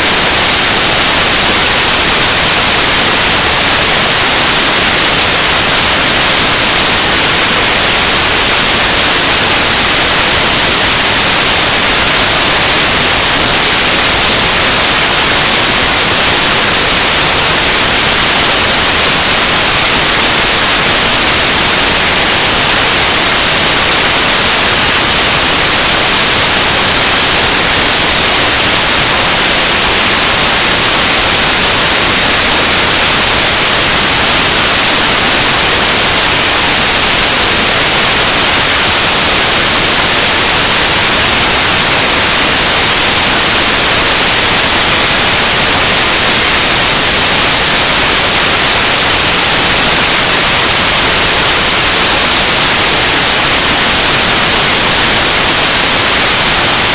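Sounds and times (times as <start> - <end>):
harsh static noise music: 0.0 - 56.9.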